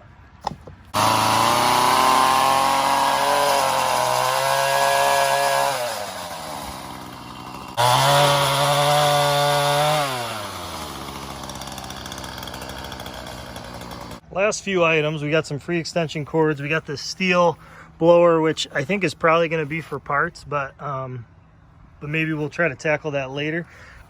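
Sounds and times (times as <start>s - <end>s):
pole saw engine revving: 0.4s - 14.2s.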